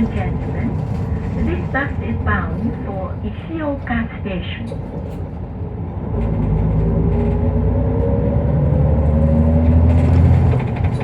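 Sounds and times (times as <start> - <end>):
bus diesel engine accelerating: 4.7 - 11.0.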